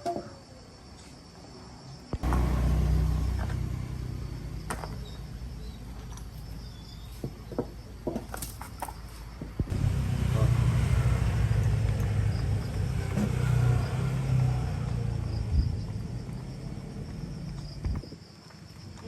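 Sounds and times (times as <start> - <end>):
low steady rumble: 2.2 - 7.3, 9.6 - 18.0.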